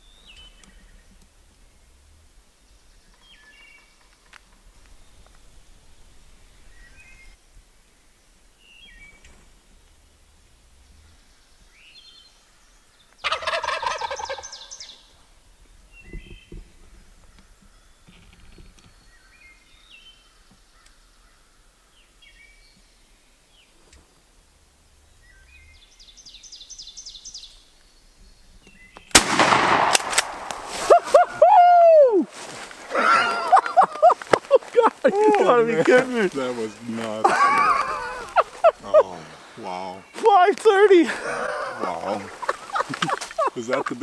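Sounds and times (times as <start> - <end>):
faint songbird chirps: 0.0 - 29.2, 32.6 - 44.0
turkey gobbling: 13.2 - 14.8, 37.2 - 39.5, 41.2 - 44.0.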